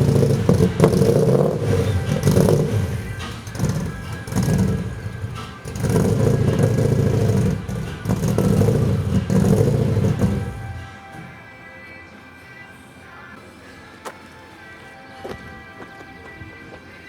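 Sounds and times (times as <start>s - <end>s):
car engine revving: 0.0s - 10.9s.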